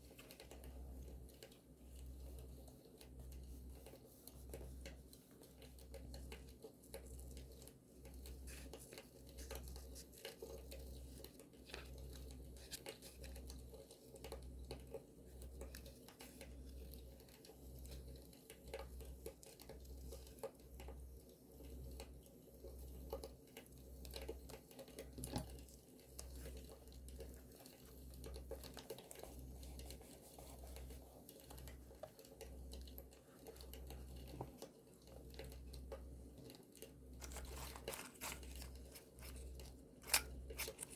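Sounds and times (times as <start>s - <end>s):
paper crinkling and tearing: 37.2s - 40.9s.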